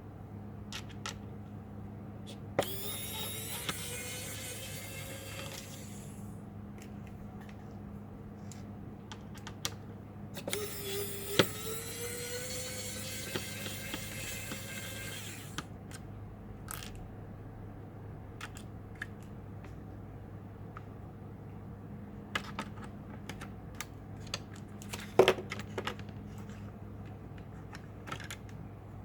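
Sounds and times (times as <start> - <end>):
clicks and taps of plastic parts: 18.4 - 19.8.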